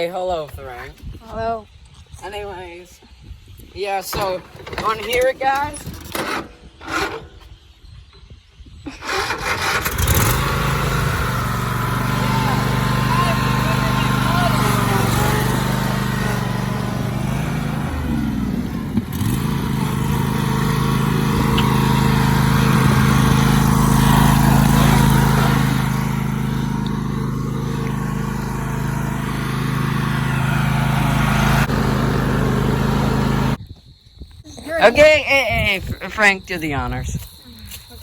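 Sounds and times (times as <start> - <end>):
lawn tractor engine running: 4.1 - 7.4, 9.0 - 33.6.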